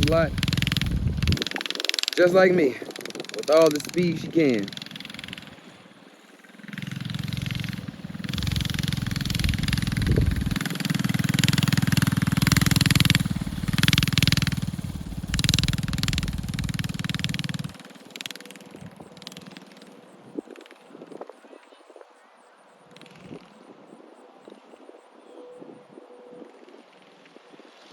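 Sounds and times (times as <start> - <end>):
small engine running hard: 0.0 - 20.8.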